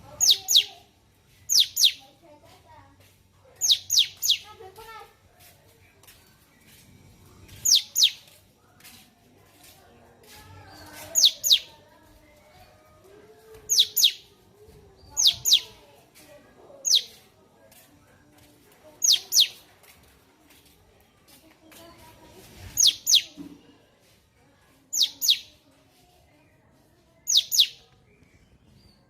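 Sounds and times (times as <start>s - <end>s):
faint low bird chatter: 0.0s - 29.0s
songbird whistles: 11.2s - 11.7s, 13.7s - 14.3s, 27.3s - 29.0s.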